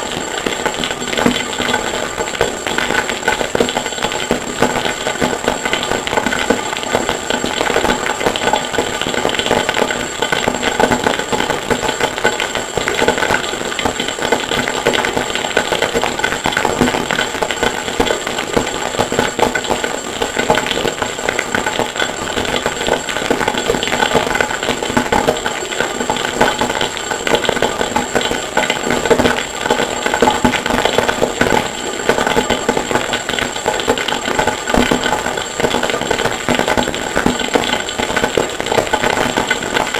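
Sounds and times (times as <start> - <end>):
harsh noise music clatter: 0.0 - 39.9
high-pitched whine: 0.0 - 39.9.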